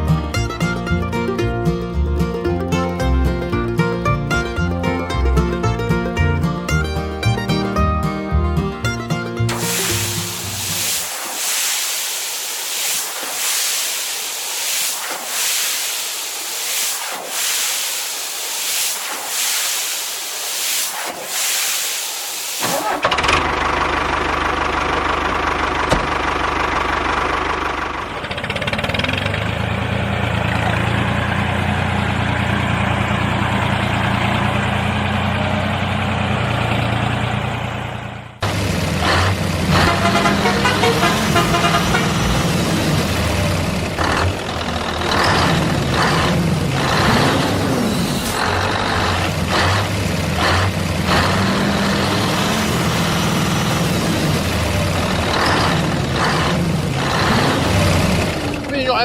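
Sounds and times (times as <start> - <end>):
pulsing hiss: 9.5 - 23.1
large engine starting and idling: 22.6 - 59.0.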